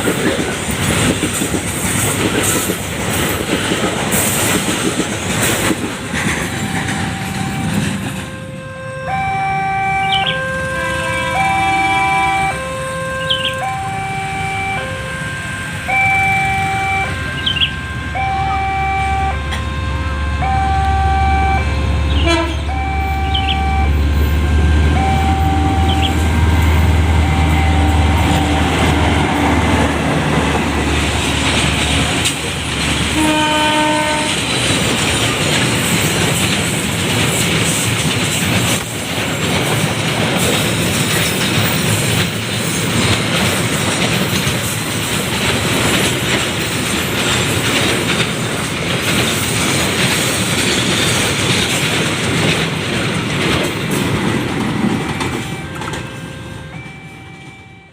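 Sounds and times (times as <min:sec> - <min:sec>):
freight train passing: 0:00.0 - 0:57.9
two-tone warning signal: 0:06.5 - 0:29.2, 0:54.9 - 0:57.9.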